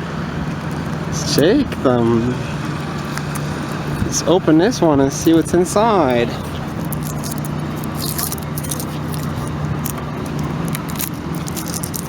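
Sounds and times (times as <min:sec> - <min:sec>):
low background hum: 0:00.0 - 0:12.0
foil wrapper crinkling: 0:02.8 - 0:12.0.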